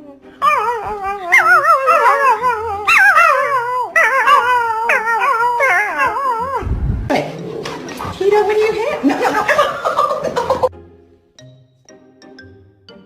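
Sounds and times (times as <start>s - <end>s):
faint backing music: 0.0s - 13.0s
dog howling: 0.4s - 6.6s.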